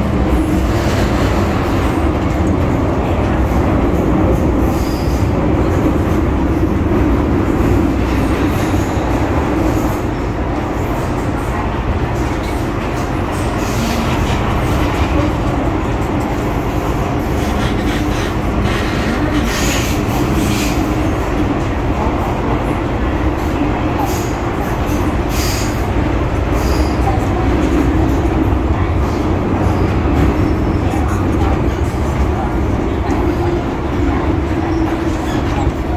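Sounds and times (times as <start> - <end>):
train wheels rumbling: 0.0 - 35.9.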